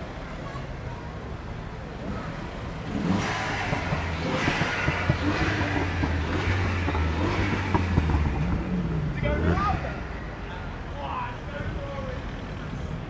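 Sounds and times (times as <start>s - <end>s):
car engine idling: 1.7s - 13.0s.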